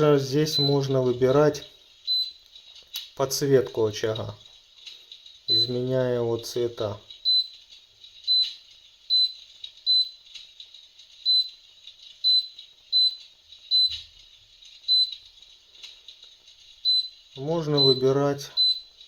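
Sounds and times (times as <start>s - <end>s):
short high beeps: 7.3s - 7.6s, 8.3s - 10.2s, 11.3s - 11.6s, 12.3s - 14.0s, 14.9s - 15.2s, 16.9s - 17.2s, 17.8s - 18.0s, 18.6s - 18.9s.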